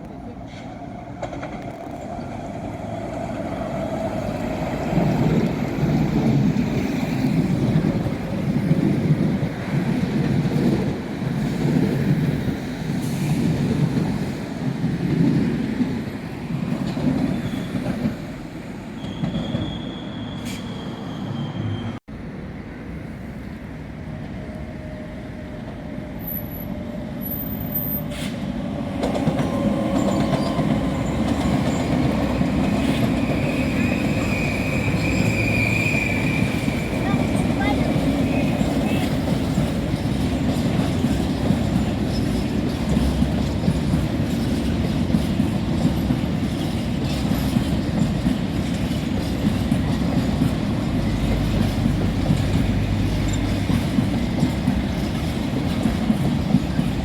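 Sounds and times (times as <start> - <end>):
train rumbling past on rails: 0.0 - 57.0
short high squeal: 19.0 - 22.0.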